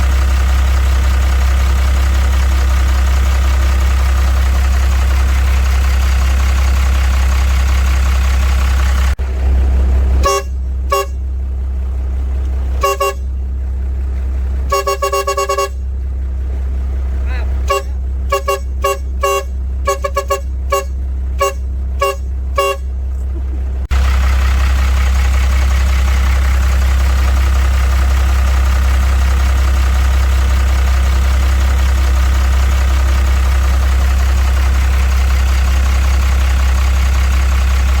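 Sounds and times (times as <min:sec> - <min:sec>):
engine idling with deep hum: 0:00.0 - 0:38.0
vehicle horn toots: 0:10.2 - 0:11.4, 0:12.8 - 0:13.5, 0:14.6 - 0:15.9, 0:17.4 - 0:23.2.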